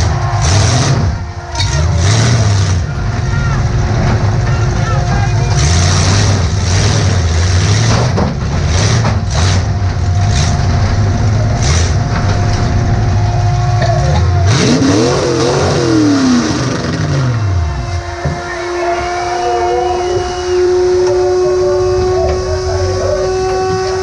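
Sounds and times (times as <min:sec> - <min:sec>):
car engine revving: 0:00.0 - 0:24.0
steady high tone: 0:17.4 - 0:24.0.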